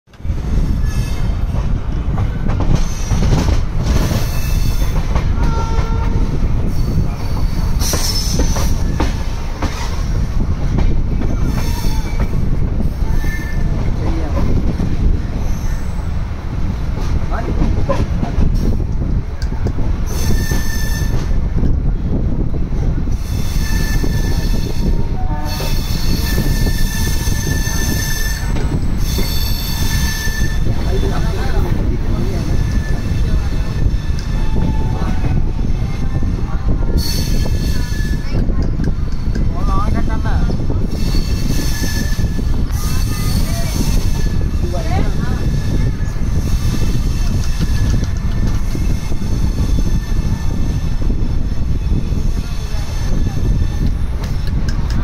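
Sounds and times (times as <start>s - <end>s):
train wheels rumbling on rail: 0.1s - 55.0s
high wheel squeals: 20.1s - 21.4s, 23.2s - 31.3s, 40.9s - 44.6s.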